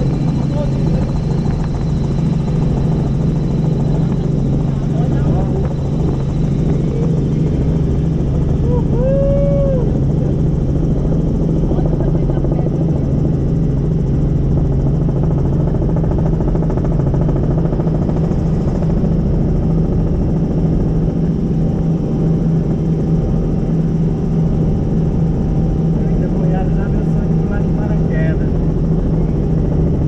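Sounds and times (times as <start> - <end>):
helicopter rotor drone: 0.0 - 30.0.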